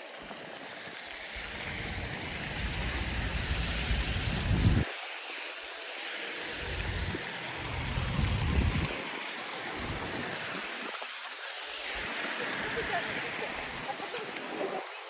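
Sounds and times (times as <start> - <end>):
wind buffeting microphone: 1.4 - 4.9, 6.5 - 11.0.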